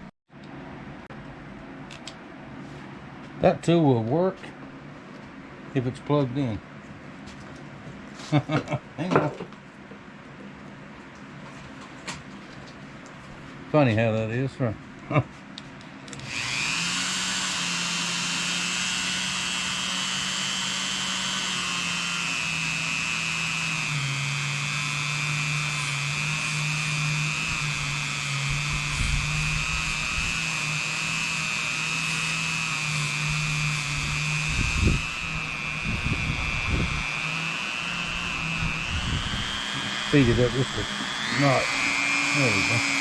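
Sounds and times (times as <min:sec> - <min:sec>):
rotary tool whining: 0:16.1 - 0:43.0.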